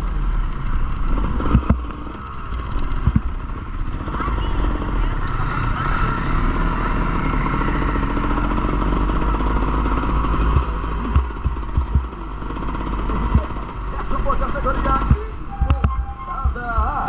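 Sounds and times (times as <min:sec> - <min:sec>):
motorbike engines revving: 0:00.0 - 0:17.0
sharp low thumps: 0:09.3 - 0:17.0.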